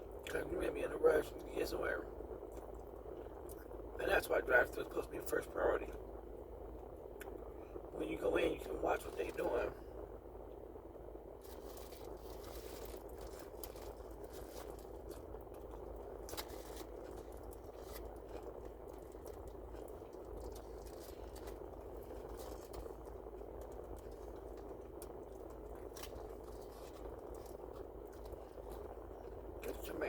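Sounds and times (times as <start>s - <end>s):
low background noise: 0.0s - 30.0s
faint chewing: 11.4s - 30.0s.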